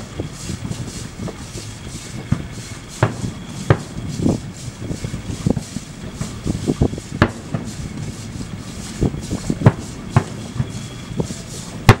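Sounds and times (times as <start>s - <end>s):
fireworks bangs: 7.2s - 8.0s, 9.6s - 10.9s.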